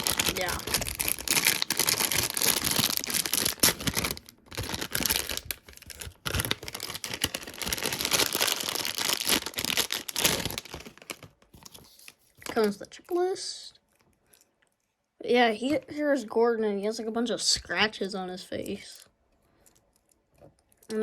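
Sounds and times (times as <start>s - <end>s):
plastic wrapping crinkling and tearing: 0.0s - 13.2s.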